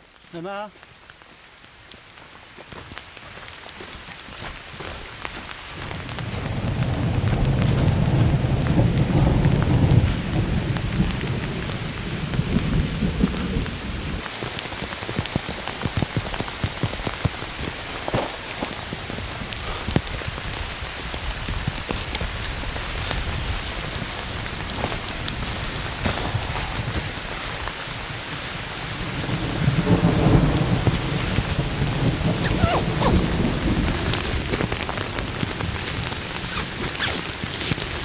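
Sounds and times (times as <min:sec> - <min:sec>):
heavy rain: 0:00.0 - 0:38.0
raindrops striking close by: 0:00.0 - 0:38.0
low thunder rumble: 0:05.9 - 0:14.2, 0:15.1 - 0:36.4.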